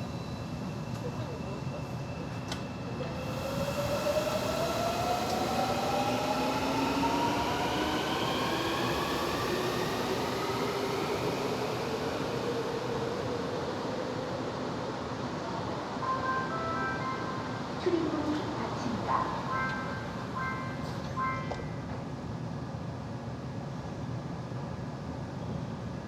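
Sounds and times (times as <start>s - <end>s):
rumble of train wheels: 0.0s - 16.0s.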